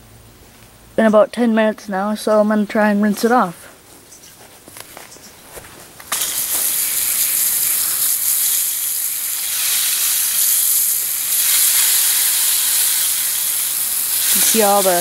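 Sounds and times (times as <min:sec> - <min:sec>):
water spray hissing: 0:06.1 - 0:15.0.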